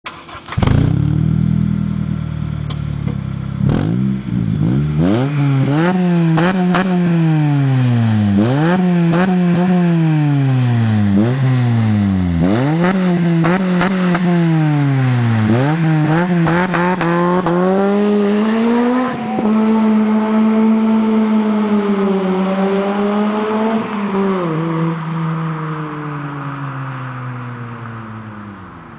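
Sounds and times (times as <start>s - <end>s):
car engine revving: 0.1s - 28.9s.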